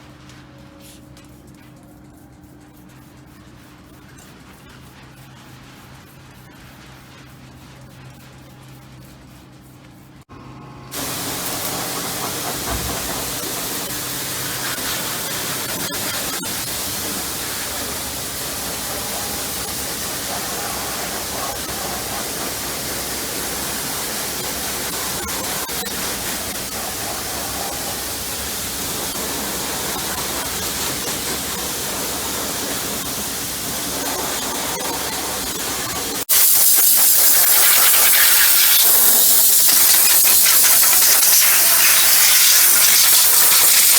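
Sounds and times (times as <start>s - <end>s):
pressure washer jet hissing: 10.9s - 43.9s.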